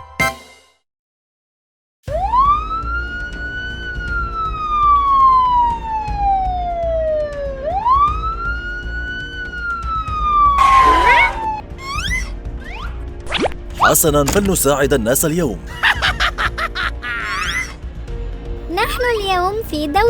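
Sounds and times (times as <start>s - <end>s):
police siren wailing: 2.1s - 12.3s.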